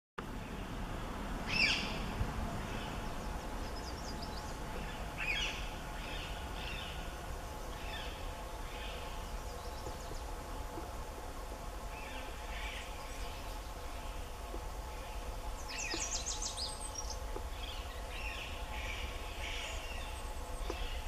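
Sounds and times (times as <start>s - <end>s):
low outdoor rumble: 0.2s - 21.0s
wild birds calling: 0.3s - 21.0s
bird chirps: 15.0s - 21.0s.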